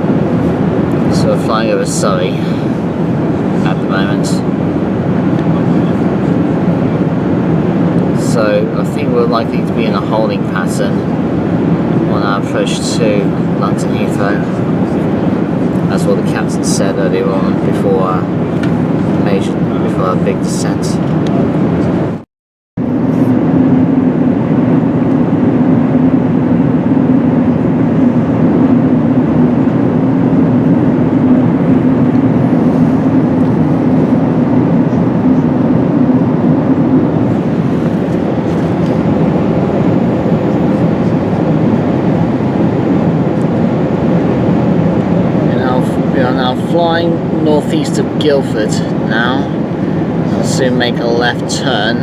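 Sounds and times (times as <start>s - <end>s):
airplane cabin engine drone: 0.0s - 52.0s.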